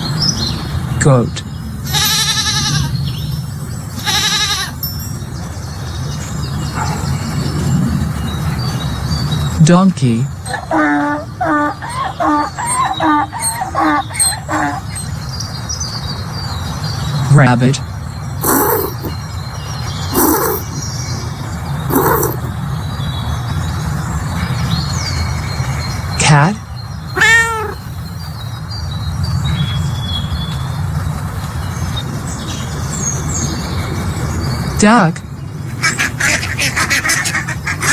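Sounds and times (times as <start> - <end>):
donkey braying: 1.7 - 5.2, 10.4 - 15.2, 20.2 - 20.6, 21.9 - 22.5, 27.1 - 28.6, 35.7 - 37.9
cat meow: 1.8 - 3.0, 3.9 - 4.8, 27.1 - 28.5.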